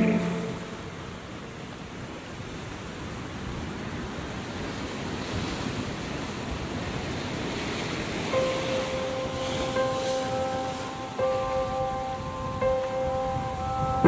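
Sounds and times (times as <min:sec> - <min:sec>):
sustained musical notes: 0:00.0 - 0:01.2, 0:08.2 - 0:14.0
ocean surf washing: 0:00.0 - 0:14.0.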